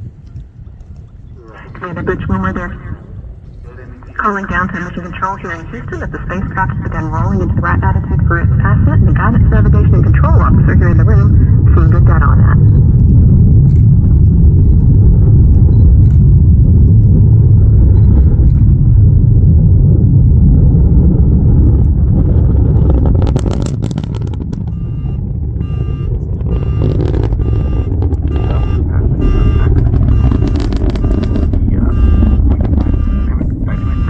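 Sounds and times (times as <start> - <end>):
deep rocket engine rumble: 0.0 - 34.0
electronic beeping tones: 24.7 - 34.0.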